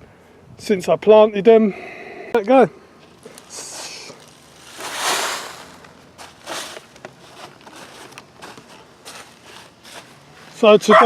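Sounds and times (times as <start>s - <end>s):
plants and soil rustling: 2.5s - 11.0s.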